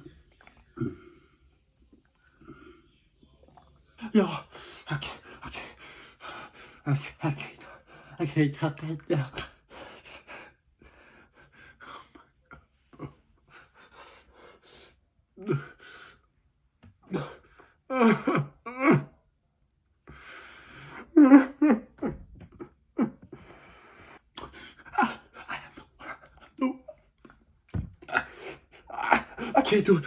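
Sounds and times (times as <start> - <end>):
man breathing heavily: 23.2 - 25.7
man gasping and coughing: 28.1 - 30.0
man moaning: 28.9 - 30.0.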